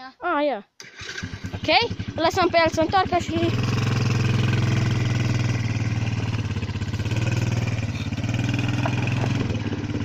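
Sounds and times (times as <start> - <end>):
atv engine running: 0.8 - 10.0.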